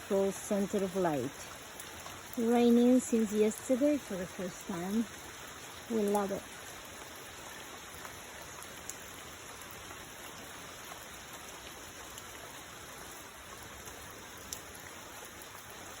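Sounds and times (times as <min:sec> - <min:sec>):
raindrop ticks: 0:00.0 - 0:16.0
steady rain hiss: 0:00.0 - 0:16.0.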